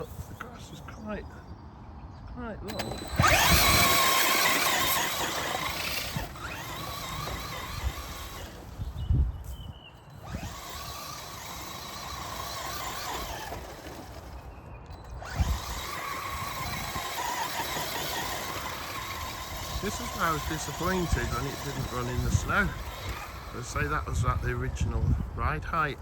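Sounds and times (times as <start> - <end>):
electric toy car motor whining: 2.7 - 25.3.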